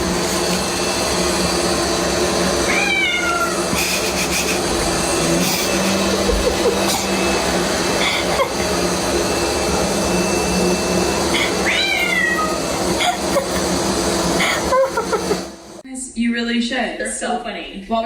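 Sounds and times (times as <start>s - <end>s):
cat meowing: 2.7s - 3.7s, 11.6s - 12.7s.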